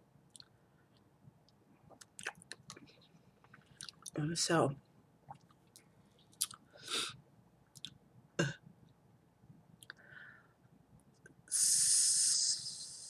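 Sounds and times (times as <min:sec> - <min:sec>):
mouth eating clicks and smacks: 0:00.3 - 0:04.2, 0:05.3 - 0:06.6, 0:07.7 - 0:08.0
soft breath: 0:09.9 - 0:10.7.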